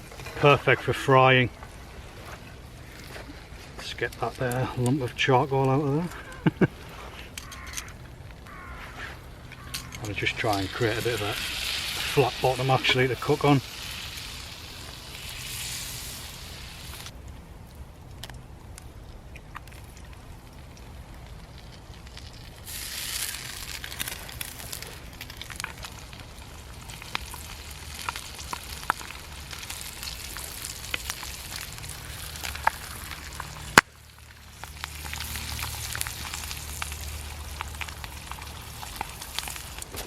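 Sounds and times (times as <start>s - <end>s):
pops and crackles: 5.6s - 40.0s
food sizzling in a pan: 10.3s - 17.1s, 22.6s - 24.6s.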